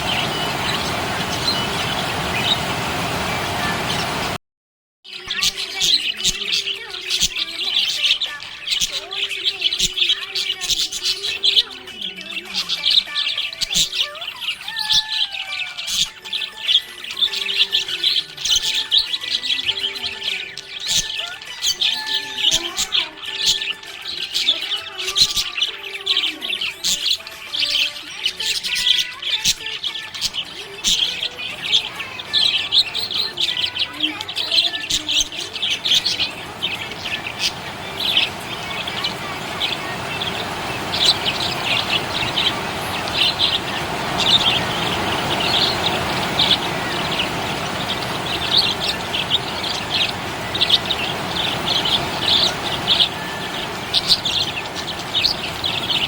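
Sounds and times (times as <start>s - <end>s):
budgerigars chirping: 0.0s - 4.4s, 5.3s - 56.0s
steady rushing noise: 0.0s - 4.4s, 35.5s - 56.0s.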